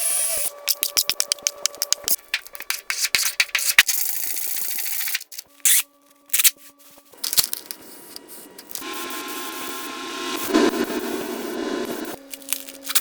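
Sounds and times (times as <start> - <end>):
steady hiss: 8.0 - 12.2.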